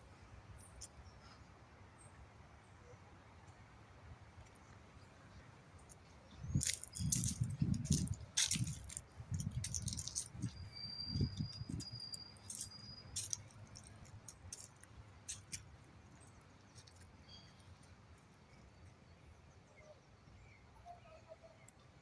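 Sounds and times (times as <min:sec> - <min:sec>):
faint chirps: 0:10.1 - 0:14.1.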